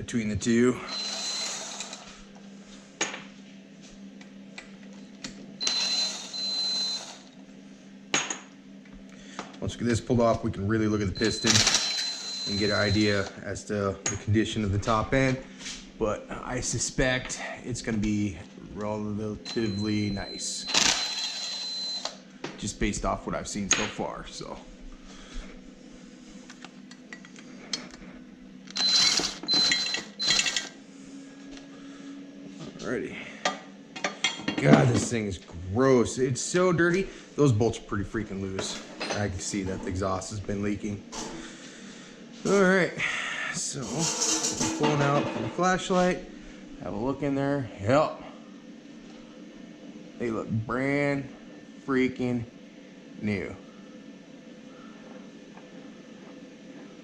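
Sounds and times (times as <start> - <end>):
steady low hum: 0.0 - 57.0
cordless driver whine: 0.7 - 2.5, 4.2 - 7.4, 11.0 - 13.4, 18.6 - 22.3, 26.5 - 30.8.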